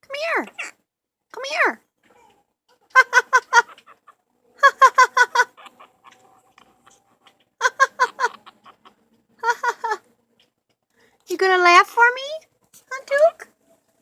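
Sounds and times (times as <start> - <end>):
parrot mimicking laughter: 0.2 - 0.8, 2.9 - 7.0, 7.6 - 10.1.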